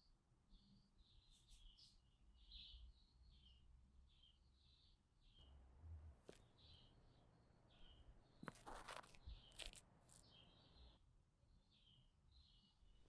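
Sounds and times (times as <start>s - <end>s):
bird chirping: 6.4s - 11.0s.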